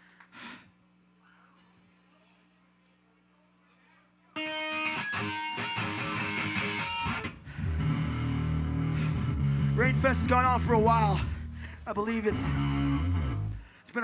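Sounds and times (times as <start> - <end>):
electric guitar chords: 4.4 - 13.7
faint low hum: 7.4 - 13.8.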